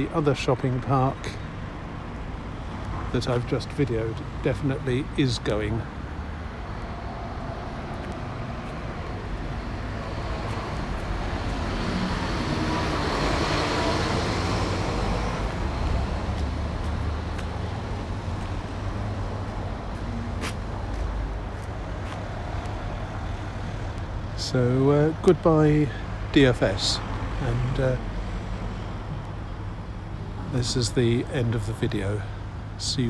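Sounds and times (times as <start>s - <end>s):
road traffic: 0.0s - 33.0s
vehicle passing close by: 6.0s - 22.6s.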